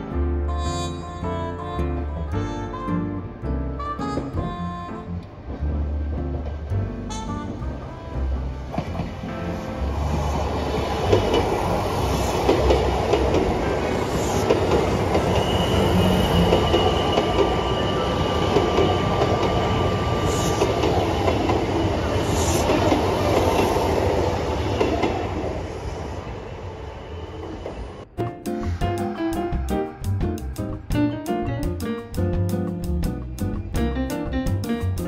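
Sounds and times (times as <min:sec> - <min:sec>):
train wheels rumbling on rails: 0:08.6 - 0:35.0
high wheel squeal: 0:13.6 - 0:22.7.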